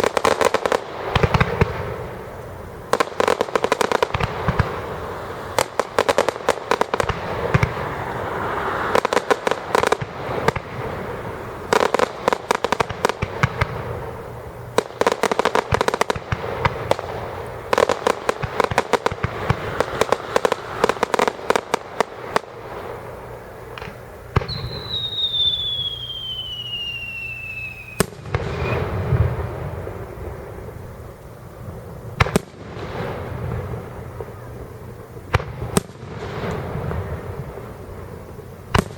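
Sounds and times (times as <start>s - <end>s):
falling firework whistle: 0.0s - 17.1s, 22.3s - 31.3s
fireworks crackling pops: 0.0s - 38.9s
firework bang: 23.7s - 30.5s.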